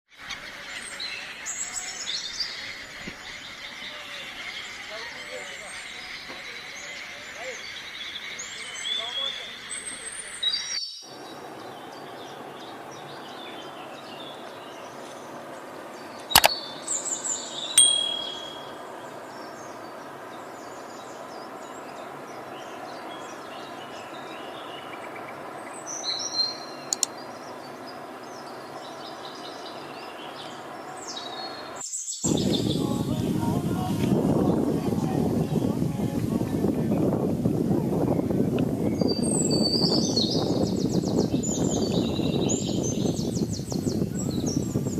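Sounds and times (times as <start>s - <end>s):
birds chirping and whistling: 0.2s - 15.0s, 25.8s - 34.8s, 38.0s - 44.9s
steady background hiss: 11.1s - 37.9s
sharp click: 16.4s - 16.6s, 26.9s - 27.1s.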